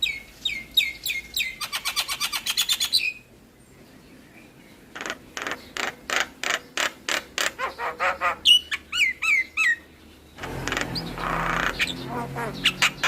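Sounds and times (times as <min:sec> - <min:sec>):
bird harsh rasping notes: 0:04.9 - 0:13.0
bird raspy churr: 0:04.9 - 0:13.0.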